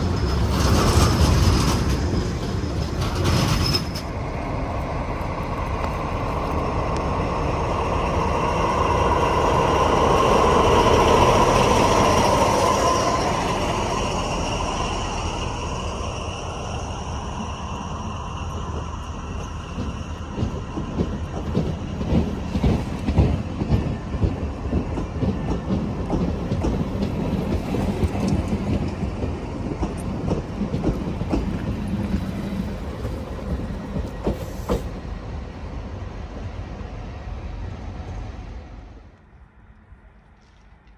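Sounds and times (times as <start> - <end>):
wheels clicking over rail joints: 0.0 - 13.8, 17.4 - 35.0
train passing close by: 0.0 - 40.9.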